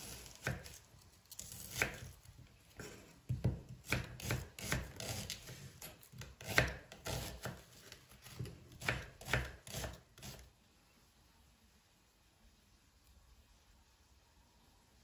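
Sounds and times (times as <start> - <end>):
knife chopping on cutting board: 0.0 - 0.8, 2.8 - 7.6, 8.2 - 10.4.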